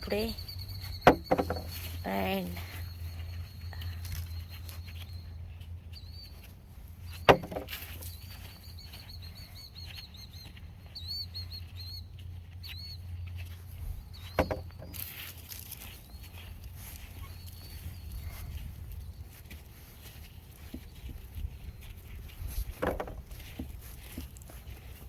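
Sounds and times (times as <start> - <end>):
small bird chirping: 0.0 - 22.6
sharp knocks: 1.0 - 1.7, 7.3 - 7.7.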